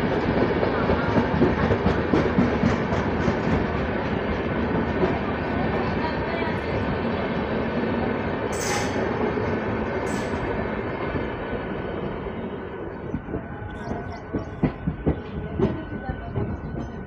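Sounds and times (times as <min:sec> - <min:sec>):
passing train coaches: 0:00.0 - 0:17.0
rush of train wheels and wind: 0:00.0 - 0:17.0.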